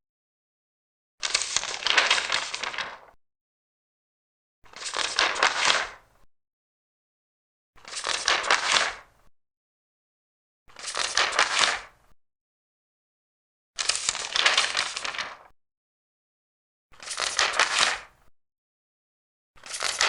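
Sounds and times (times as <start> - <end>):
paper pages turning: 1.2 - 3.2, 4.8 - 6.0, 7.8 - 9.0, 10.7 - 12.0, 13.8 - 15.5, 17.0 - 18.1, 19.6 - 20.0.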